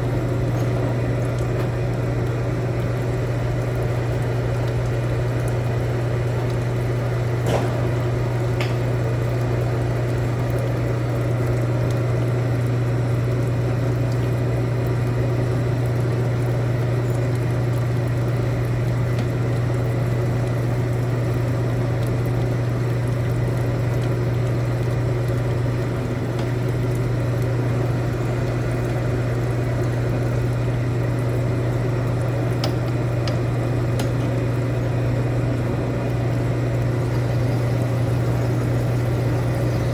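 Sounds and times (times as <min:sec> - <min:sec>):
machine humming: 0:00.0 - 0:11.6, 0:24.3 - 0:39.9.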